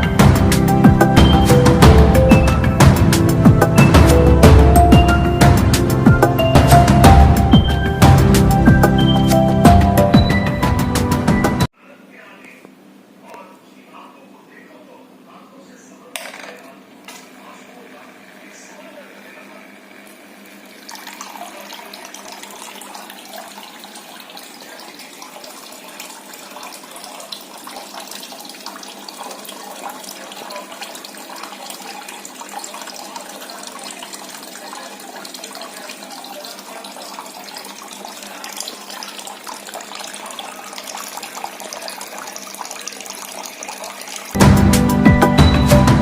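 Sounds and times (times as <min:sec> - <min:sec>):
water trickling from a pipe: 0:19.8 - 0:44.4.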